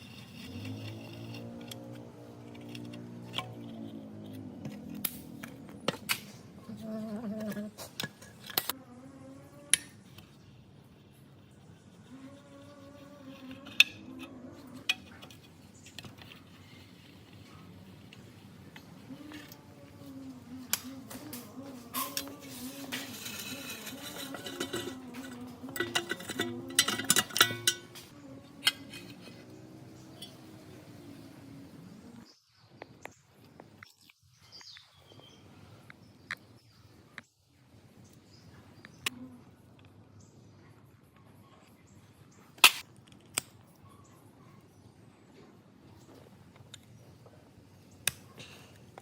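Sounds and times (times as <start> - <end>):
metal tools clicking and clinking: 20.7 - 30.5.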